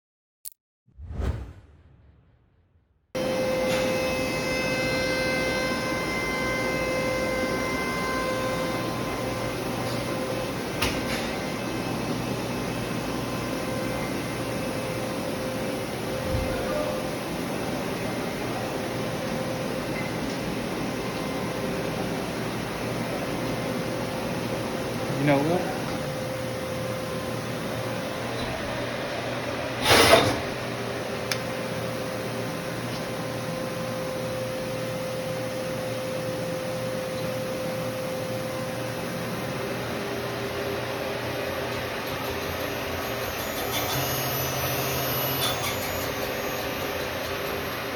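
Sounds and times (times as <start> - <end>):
short loud rush of noise: 0.9 - 2.8
machining center whine: 3.2 - 47.9.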